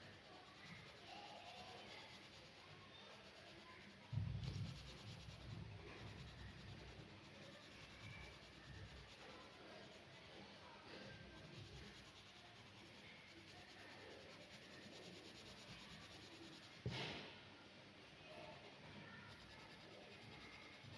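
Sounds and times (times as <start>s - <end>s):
pencil scratching on paper: 0.4s - 16.8s
low thump: 16.8s - 17.3s.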